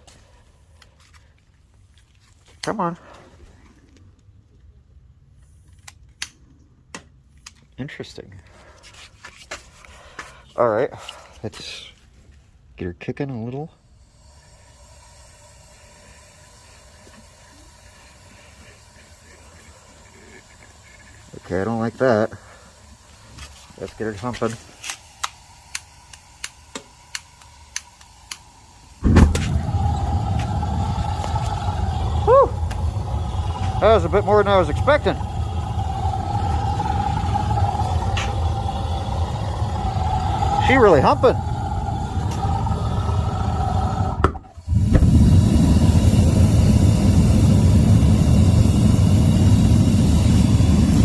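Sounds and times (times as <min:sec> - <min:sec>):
forge burners hissing: 0:14.0 - 0:51.0
burner igniter clicks: 0:24.8 - 0:30.6
forge igniting whoosh: 0:29.0 - 0:51.0.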